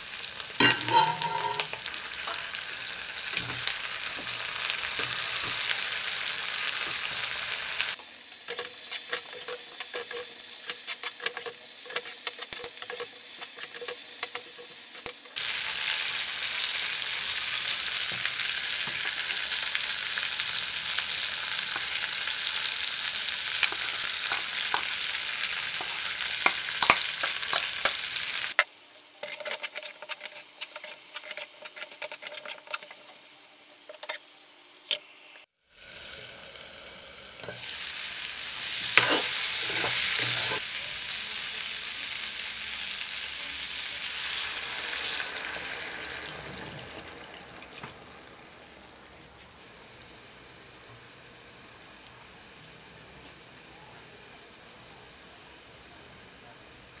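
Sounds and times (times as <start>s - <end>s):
food sizzling in hot oil: 0.0s - 57.0s
metal spoon scraping a pan: 0.6s - 2.6s, 8.4s - 15.4s, 21.2s - 33.2s, 33.8s - 34.3s, 38.6s - 40.6s.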